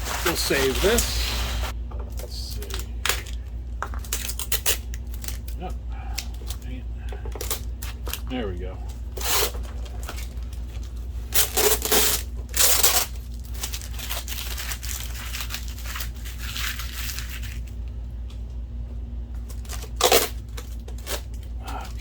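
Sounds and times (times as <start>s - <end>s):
packing material ripping: 0.0s - 1.7s, 4.0s - 6.6s, 9.2s - 17.8s, 19.5s - 22.0s
packing material crinkling: 0.0s - 1.8s, 9.2s - 17.8s.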